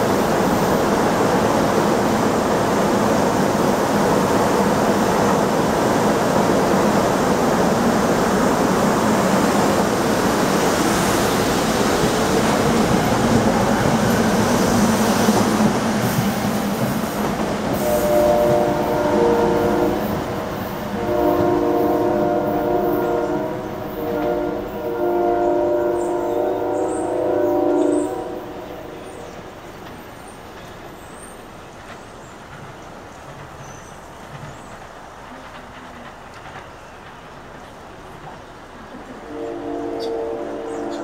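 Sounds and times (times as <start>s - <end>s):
train wheels rumbling on rails: 0.0s - 41.0s
distant train horn: 17.7s - 29.3s, 39.1s - 41.0s.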